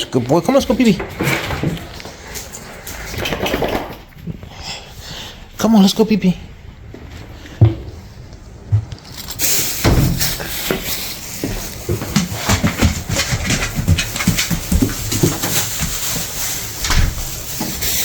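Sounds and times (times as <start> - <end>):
small clicks and rustles: 8.9 - 18.0
steady hiss: 9.1 - 12.6.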